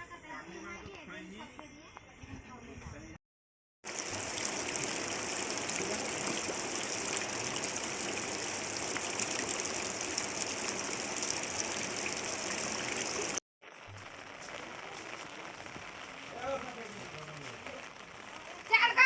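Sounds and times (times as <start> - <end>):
water rushing: 3.8 - 13.4
water pattering: 3.9 - 13.4.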